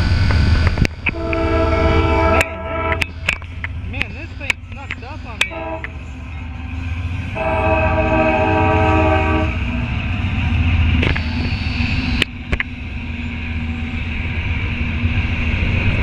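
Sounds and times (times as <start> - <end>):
low rumble of diesel locomotives: 0.0 - 16.0
locomotive air horn: 1.1 - 3.1, 5.4 - 6.0, 7.3 - 9.7.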